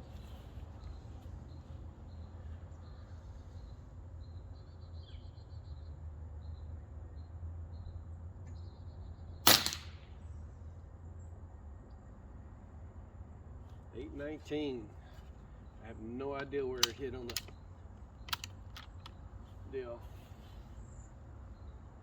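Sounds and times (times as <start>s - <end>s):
air rifle shot: 9.4s - 10.2s.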